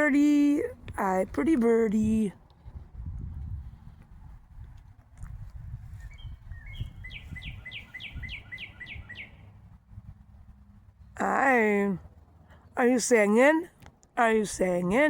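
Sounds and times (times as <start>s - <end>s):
bird whistled song: 6.0s - 9.5s.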